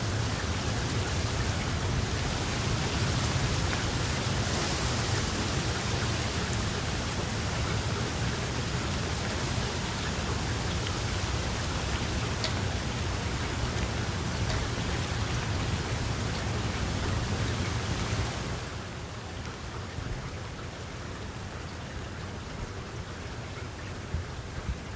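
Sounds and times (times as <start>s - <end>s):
steady rainfall: 0.0s - 24.9s.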